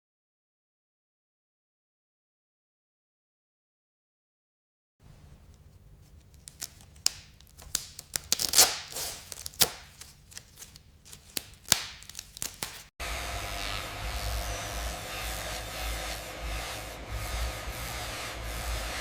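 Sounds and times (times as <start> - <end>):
scraping: 5.0 - 12.9
sharp clicks and taps: 5.1 - 12.9.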